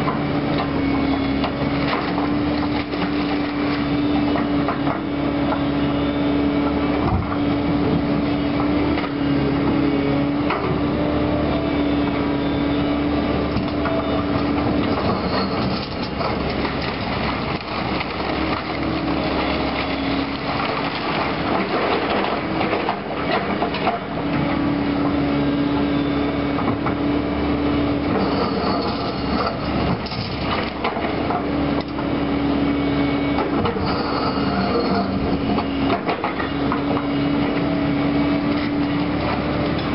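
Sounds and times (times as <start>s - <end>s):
hydraulic whine: 0.0s - 39.9s
debris scraping and clattering: 14.8s - 19.0s.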